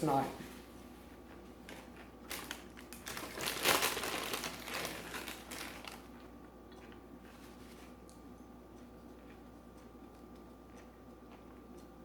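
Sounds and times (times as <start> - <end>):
crinkling and crunching: 1.1 - 8.1.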